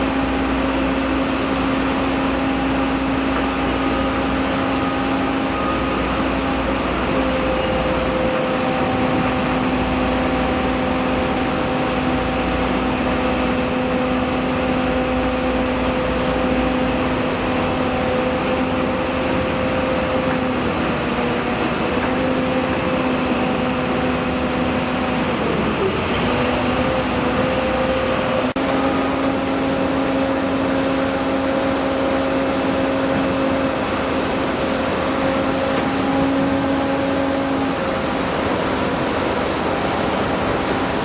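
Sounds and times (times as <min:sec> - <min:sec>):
machine engine droning: 0:00.0 - 0:41.0.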